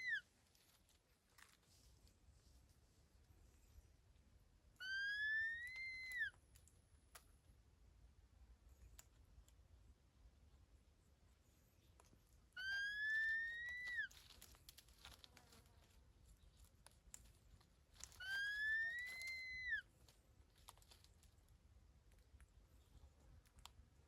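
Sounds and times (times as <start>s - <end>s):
bird whistled calls: 4.8s - 6.3s.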